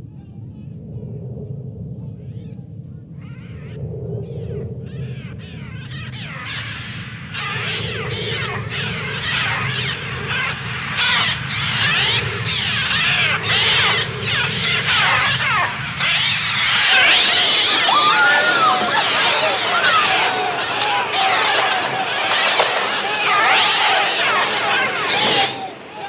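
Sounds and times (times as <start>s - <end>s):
low steady rumble: 0.0s - 10.4s
gulls screeching: 4.9s - 26.0s.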